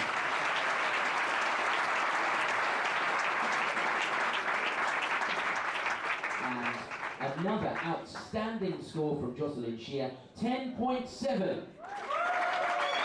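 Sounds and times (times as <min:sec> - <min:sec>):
spectators applauding: 0:00.0 - 0:08.4, 0:11.8 - 0:13.0.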